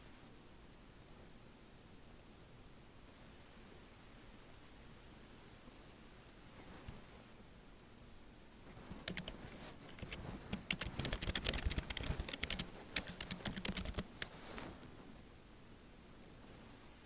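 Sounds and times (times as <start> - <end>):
typing on computer keyboard: 8.7 - 14.6.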